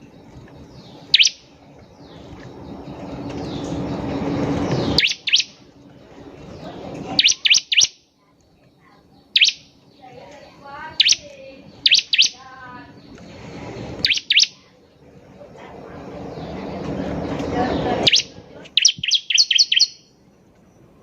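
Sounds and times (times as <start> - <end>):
bird song with whip-like notes: 1.0 - 5.6, 11.0 - 12.4, 14.0 - 14.6, 17.3 - 20.1.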